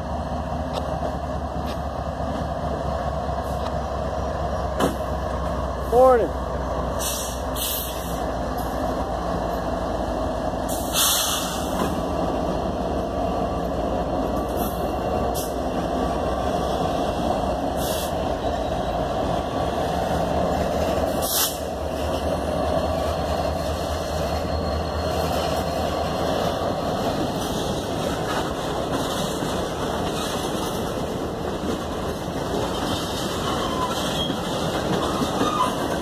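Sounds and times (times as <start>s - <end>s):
diesel locomotives rumbling: 0.0s - 36.0s
wheels rolling on rails: 11.7s - 36.0s.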